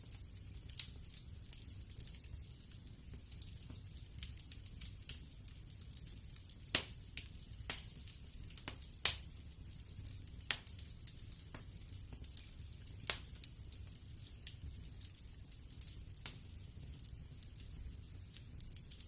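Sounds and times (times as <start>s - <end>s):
fire pops and snaps: 0.0s - 19.0s
wood fire crackling: 0.0s - 19.0s.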